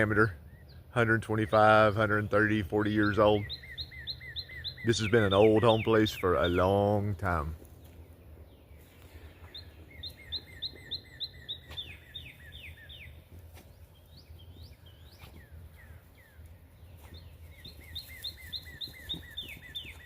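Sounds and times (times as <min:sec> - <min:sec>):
songbird whistling: 0:03.0 - 0:06.6, 0:09.4 - 0:13.3, 0:14.0 - 0:20.0.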